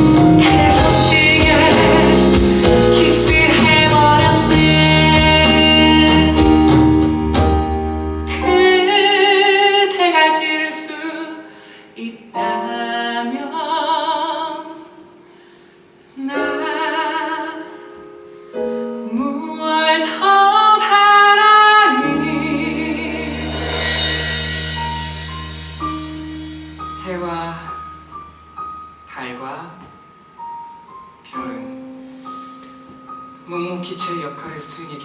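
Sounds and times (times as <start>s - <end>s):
person singing with vibrato: 0.0s - 7.3s, 8.2s - 15.4s, 16.2s - 18.0s, 18.6s - 25.8s
instrumental accompaniment: 0.0s - 10.5s, 21.9s - 35.0s.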